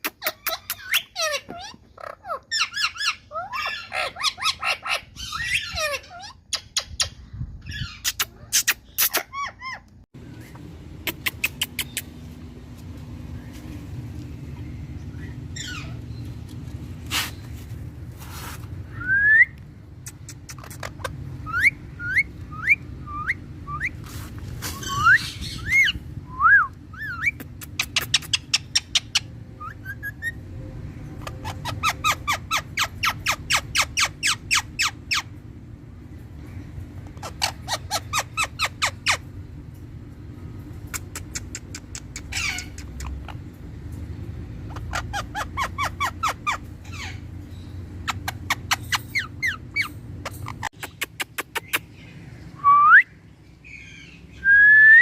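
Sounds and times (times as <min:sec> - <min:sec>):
parakeet harsh calls: 0:00.2 - 0:06.7, 0:15.1 - 0:16.0, 0:37.2 - 0:39.3, 0:42.2 - 0:43.5, 0:44.6 - 0:47.4
steady low hum: 0:02.1 - 0:55.0.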